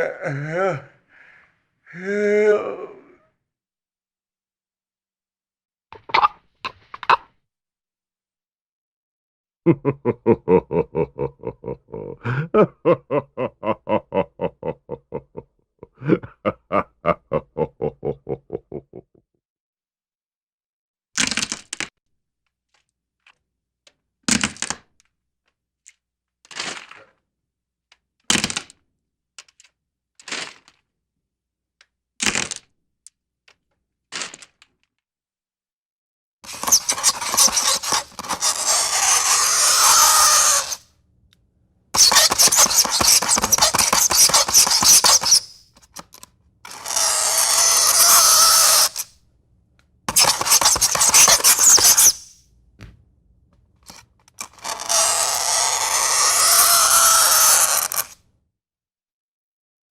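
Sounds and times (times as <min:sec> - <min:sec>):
long harsh scraping: 0:36.5 - 0:40.8, 0:42.0 - 0:46.1, 0:46.7 - 0:49.1, 0:50.1 - 0:52.4, 0:53.9 - 0:58.2.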